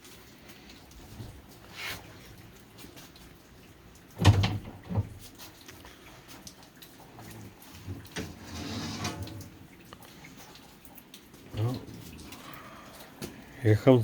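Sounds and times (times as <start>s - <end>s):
rustling scrape: 7.8s - 9.6s.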